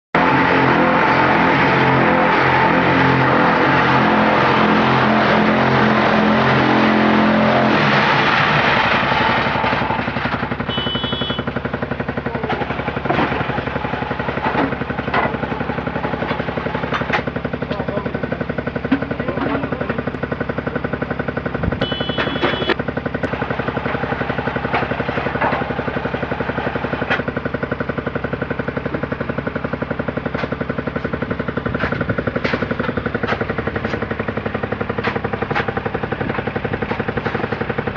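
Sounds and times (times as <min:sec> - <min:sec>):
block machine mechanical drone: 0:00.2 - 0:37.9
short beeps: 0:10.7 - 0:11.5, 0:21.8 - 0:22.8
knocks and clanks: 0:12.4 - 0:15.6, 0:21.6 - 0:27.3, 0:30.3 - 0:34.2, 0:34.8 - 0:37.8.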